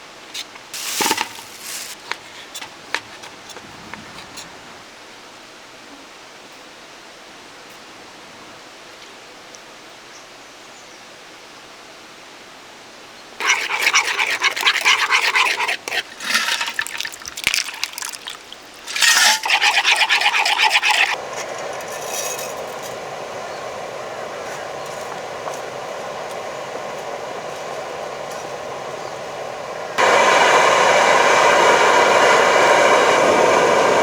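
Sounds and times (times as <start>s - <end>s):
water pouring and splashing: 0.8s - 2.1s, 13.4s - 30.1s
mountain stream rushing: 13.4s - 34.0s.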